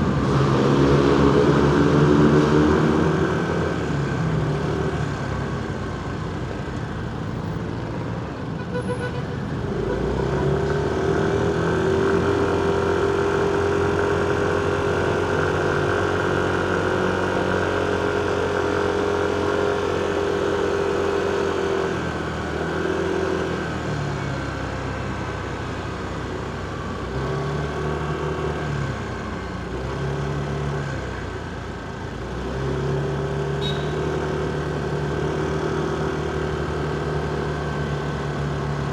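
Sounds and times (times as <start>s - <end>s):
traffic noise: 0.0s - 38.9s
motorcycle engine running: 33.0s - 38.9s.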